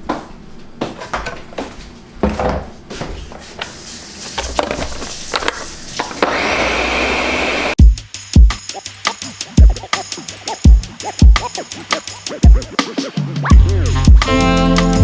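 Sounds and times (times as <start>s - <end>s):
kitchen things clattering: 0.9s - 6.3s.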